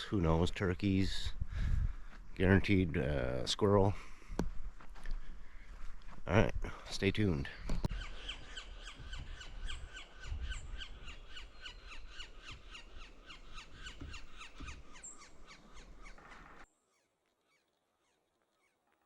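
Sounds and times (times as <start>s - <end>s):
low thumps: 7.6s - 11.5s
bird calling sharp notes: 7.6s - 18.8s.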